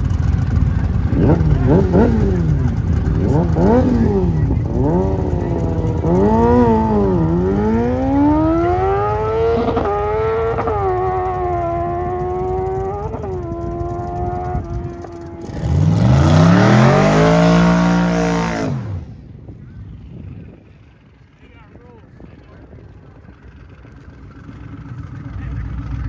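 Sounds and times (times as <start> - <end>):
louder engine revving: 0.0 - 19.2
drag racing car engine: 0.0 - 26.0.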